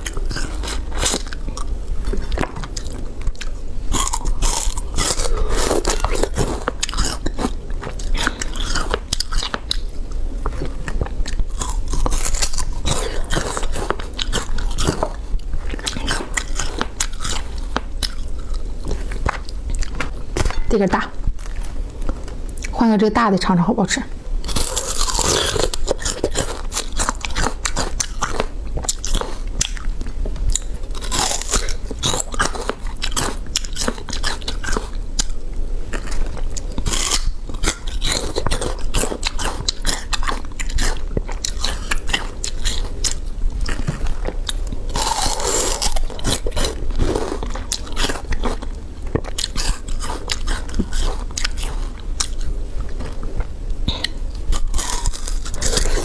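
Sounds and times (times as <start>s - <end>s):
sugarcane crunching: 43.7s - 48.6s, 54.0s - 56.0s.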